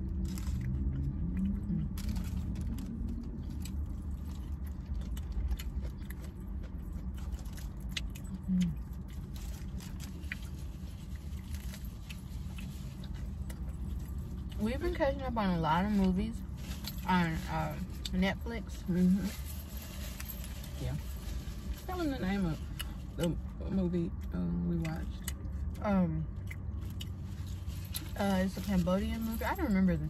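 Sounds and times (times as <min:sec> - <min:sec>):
chewing and biting food: 0:00.0 - 0:14.6, 0:22.7 - 0:28.2
car interior rumble: 0:00.0 - 0:30.0.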